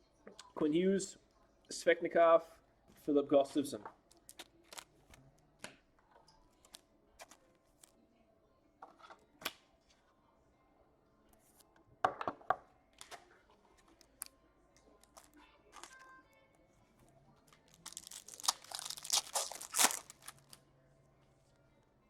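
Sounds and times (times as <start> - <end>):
cards clicking and rustling: 4.1 - 5.8, 17.5 - 20.6
foil wrapper tearing open: 4.2 - 4.9, 17.6 - 20.6.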